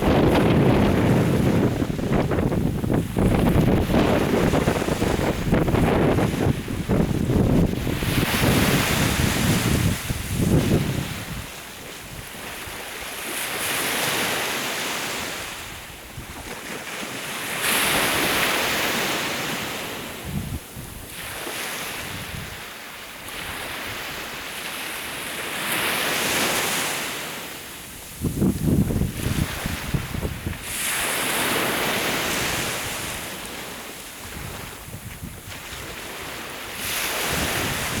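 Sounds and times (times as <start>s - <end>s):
wind buffeting microphone: 0.0s - 12.8s, 20.2s - 22.6s, 28.0s - 30.8s, 34.2s - 38.0s
sea waves washing onto shore: 0.0s - 38.0s.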